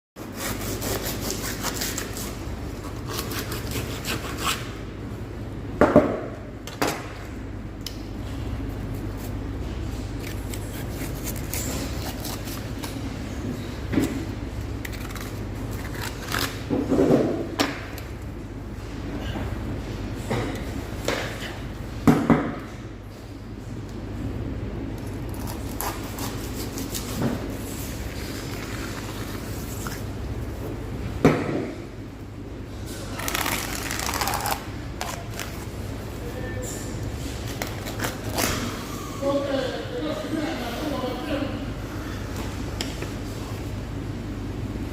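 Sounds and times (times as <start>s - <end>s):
knife scraping a cutting board: 0.2s - 4.8s, 10.1s - 12.9s
steady low hum: 0.2s - 44.9s.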